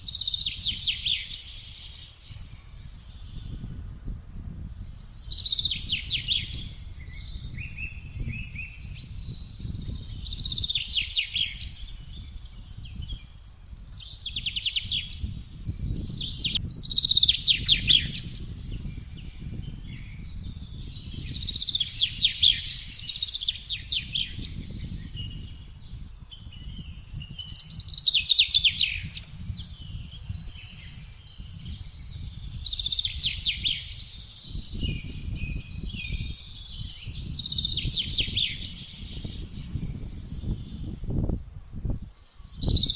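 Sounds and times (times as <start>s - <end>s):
low rumble of wind: 0.0s - 42.9s
songbird trilling: 0.0s - 42.9s.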